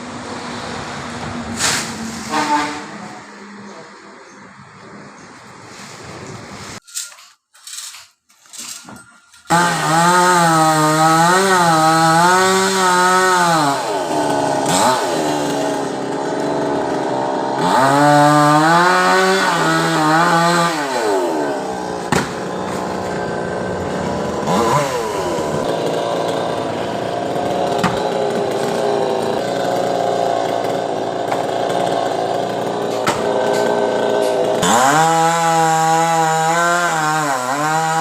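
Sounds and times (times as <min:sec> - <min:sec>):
chainsaw cutting wood: 0:09.5 - 0:38.0.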